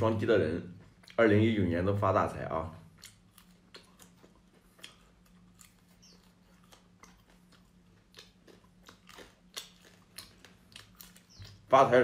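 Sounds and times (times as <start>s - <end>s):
low steady hum: 0.0s - 12.0s
crisp crunching while chewing: 2.9s - 12.0s.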